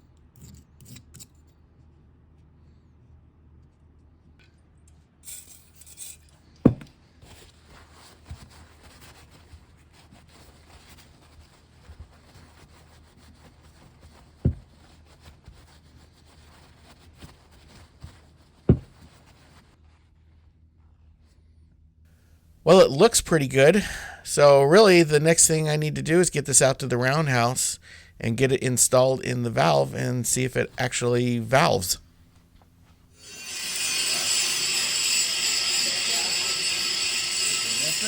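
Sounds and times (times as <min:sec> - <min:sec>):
sharp knocks: 0:06.7 - 0:06.9
sharpening stone scraping metal: 0:33.2 - 0:38.0.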